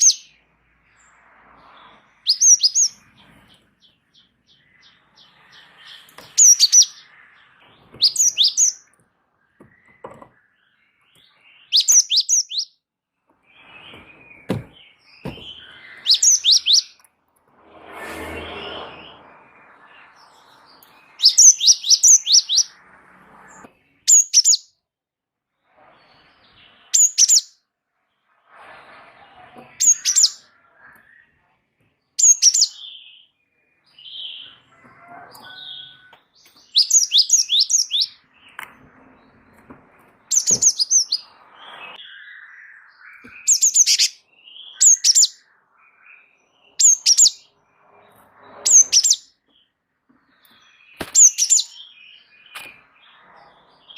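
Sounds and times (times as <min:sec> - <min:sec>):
bird singing high notes: 0:02.2 - 0:03.0, 0:03.8 - 0:08.9, 0:11.5 - 0:12.8, 0:13.5 - 0:17.0.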